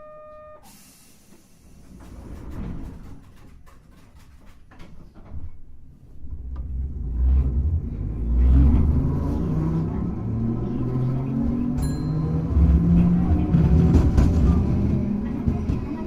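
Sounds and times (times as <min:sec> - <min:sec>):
wheels rumbling: 0:05.1 - 0:16.0.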